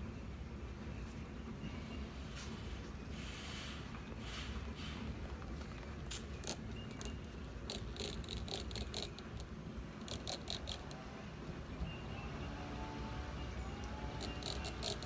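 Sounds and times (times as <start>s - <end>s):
spray bottle squirting: 6.1s - 11.0s, 14.1s - 15.0s.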